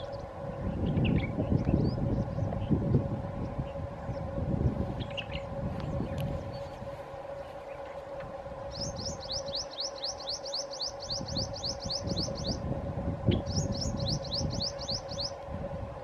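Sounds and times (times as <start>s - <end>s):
steady hum: 0.0s - 16.0s
bird chirping: 8.7s - 12.6s, 13.3s - 15.4s.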